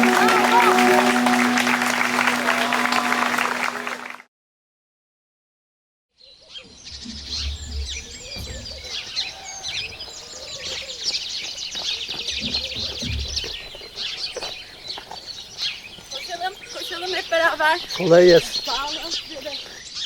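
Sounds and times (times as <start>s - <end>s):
small birds chirping chorus: 6.2s - 20.0s.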